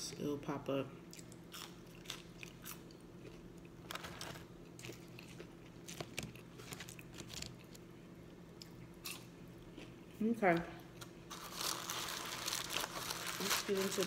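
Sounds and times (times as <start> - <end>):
faint steady hum: 0.0 - 14.0
person chewing fries: 1.1 - 10.1.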